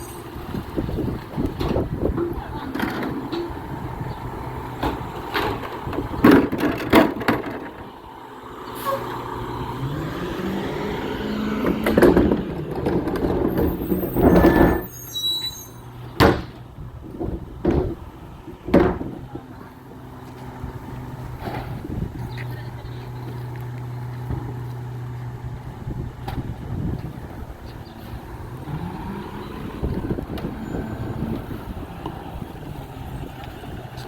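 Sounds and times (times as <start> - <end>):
garbage truck engine running: 9.1 - 15.1
loud bangs and clanks: 11.6 - 14.8.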